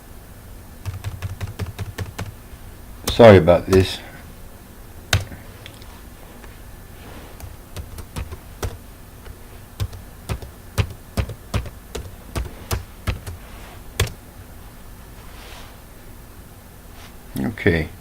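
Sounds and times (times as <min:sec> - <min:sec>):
computer keyboard typing: 0:00.8 - 0:02.4, 0:03.1 - 0:04.0, 0:05.1 - 0:05.4, 0:07.4 - 0:13.4, 0:14.0 - 0:14.2.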